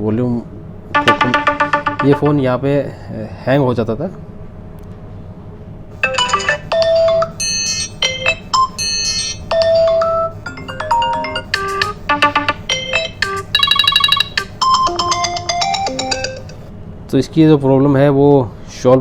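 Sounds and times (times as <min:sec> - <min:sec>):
ringtone previews on phone speaker: 0:01.0 - 0:02.5, 0:10.6 - 0:16.5.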